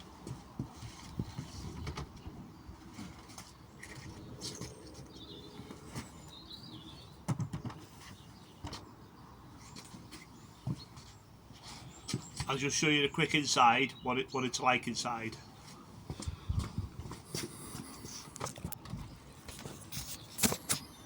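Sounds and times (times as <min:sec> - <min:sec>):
faint bird chirping: 0:03.5 - 0:07.2.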